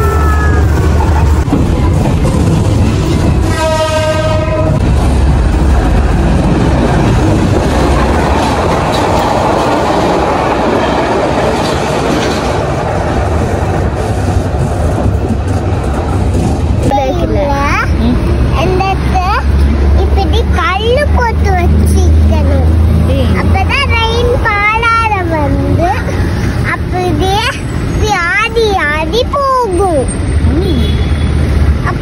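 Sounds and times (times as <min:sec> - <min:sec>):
train rushing past: 0:00.0 - 0:32.0
train wheel-on-rail rumble: 0:00.0 - 0:32.0
train horn blast: 0:03.4 - 0:04.8.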